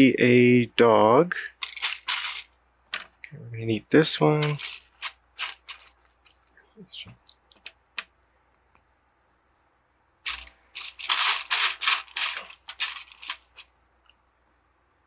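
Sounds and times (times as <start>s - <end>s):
hand rummaging through plastic bricks: 1.6s - 3.2s, 4.4s - 6.4s, 10.3s - 13.7s.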